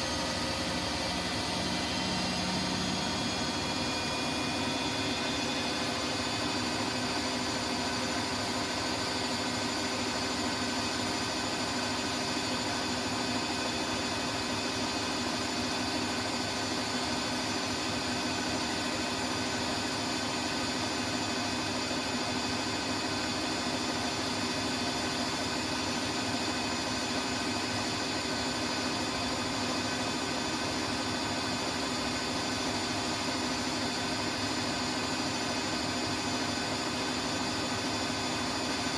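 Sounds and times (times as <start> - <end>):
washing machine whirring: 0.0 - 38.9.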